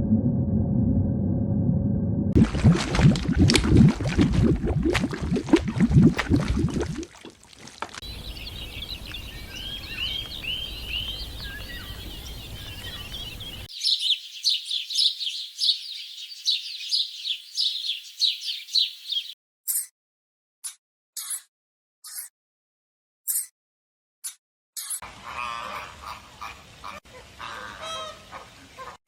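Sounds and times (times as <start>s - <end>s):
high bird chirps: 8.0s - 19.4s
low bird calls: 8.0s - 19.4s.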